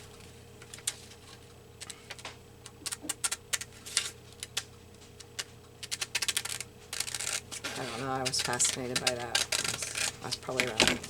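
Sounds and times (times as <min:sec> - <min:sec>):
faint steady hum: 0:00.0 - 0:11.0
scissors snipping paper: 0:01.8 - 0:11.0.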